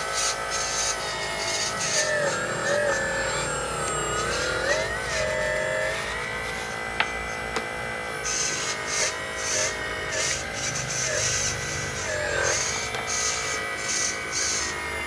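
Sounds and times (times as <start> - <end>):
rc truck motor whining: 0.0 - 15.0.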